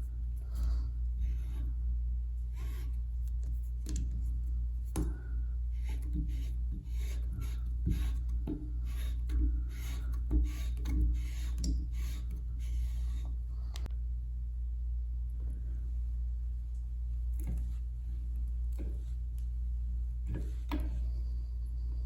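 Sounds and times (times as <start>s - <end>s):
steady low hum: 0.0s - 22.0s
hands rubbing and scraping fittings: 2.4s - 5.2s, 5.8s - 13.9s.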